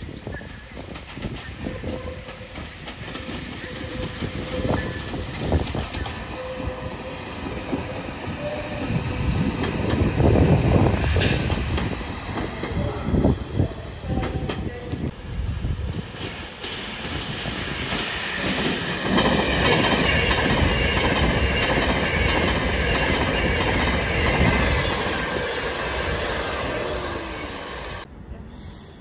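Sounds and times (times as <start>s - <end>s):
train wheels clacking over joints: 0.8s - 13.0s, 16.2s - 26.2s.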